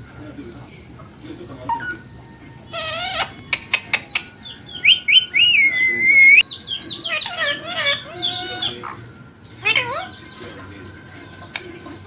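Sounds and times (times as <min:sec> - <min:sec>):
parrot squawking and whistling: 0:01.7 - 0:02.0, 0:02.7 - 0:03.8, 0:04.4 - 0:09.0.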